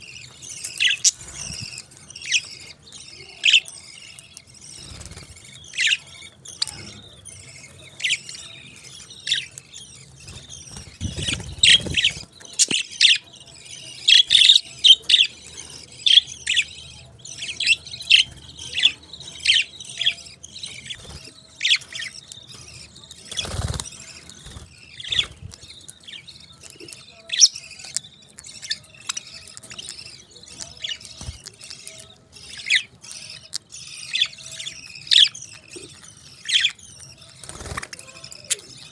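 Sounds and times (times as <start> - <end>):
parakeets chirping: 0.0 - 38.9.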